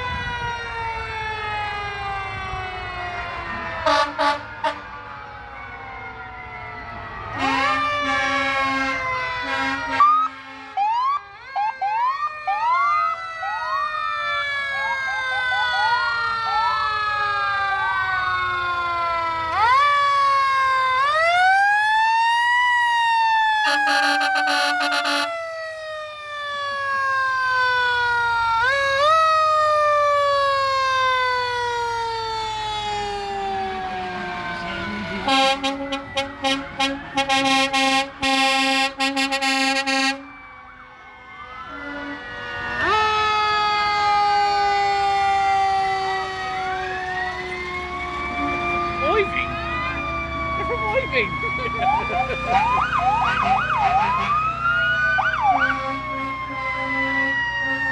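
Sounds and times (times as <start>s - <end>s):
fire truck sirens wailing: 0.0s - 57.9s
siren whoops: 0.0s - 57.9s
chord-like horn blasts: 3.8s - 4.9s, 7.4s - 10.8s, 23.7s - 25.3s, 35.2s - 40.3s.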